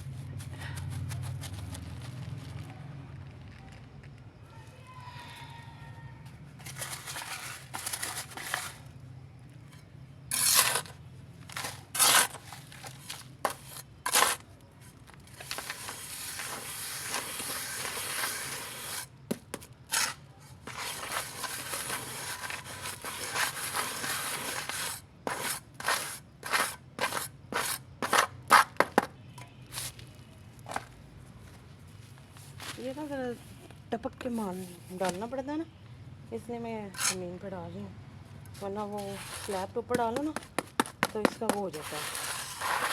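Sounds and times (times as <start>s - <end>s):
wet paste scraping: 10.3s - 14.5s, 15.4s - 19.1s, 19.9s - 28.8s, 36.9s - 37.3s, 38.6s - 42.9s.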